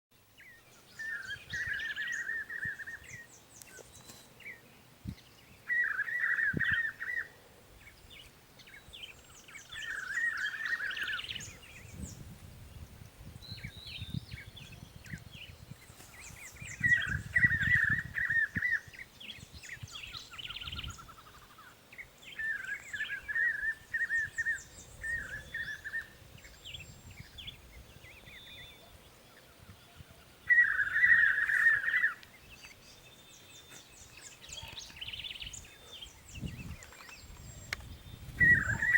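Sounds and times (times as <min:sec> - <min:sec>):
high bird chirps: 0:36.4 - 0:38.9.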